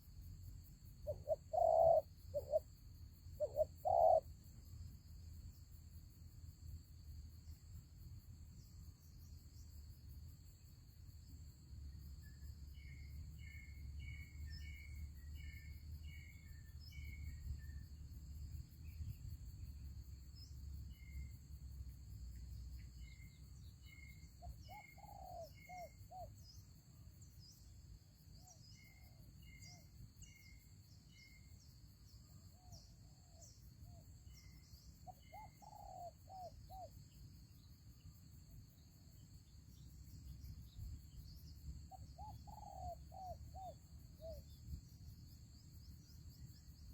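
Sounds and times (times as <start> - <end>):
doves cooing: 1.1 - 2.6, 3.4 - 4.2
small bird chirping: 1.1 - 2.7, 3.4 - 4.3, 22.8 - 26.7, 32.6 - 37.3, 39.8 - 44.6.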